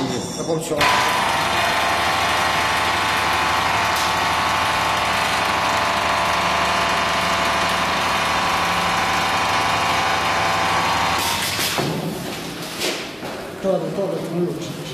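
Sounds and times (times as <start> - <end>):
welding machine buzzing: 0.8 - 11.8.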